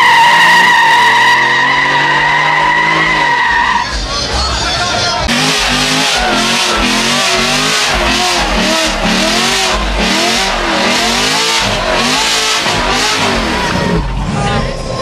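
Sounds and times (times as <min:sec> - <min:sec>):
car engine revving hard: 0:00.0 - 0:03.8, 0:05.2 - 0:15.0
spinning tyres hissing: 0:05.3 - 0:14.3.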